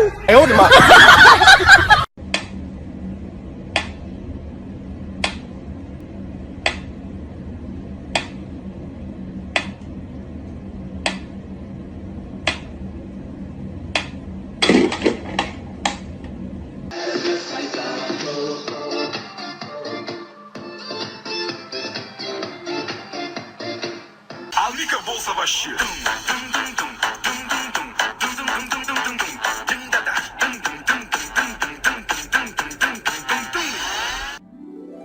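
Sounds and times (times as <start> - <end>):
steady low hum: 0.0 - 17.0, 24.2 - 33.5
music: 16.9 - 35.0.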